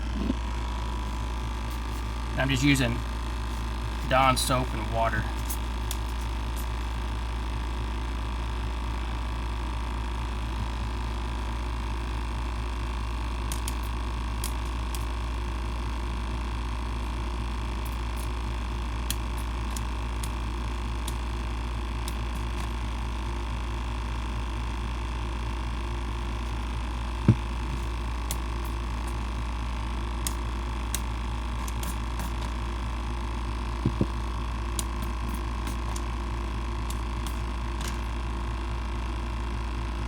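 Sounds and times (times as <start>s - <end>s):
small air pump humming: 0.0s - 40.0s
sharp knocks: 33.9s - 34.2s.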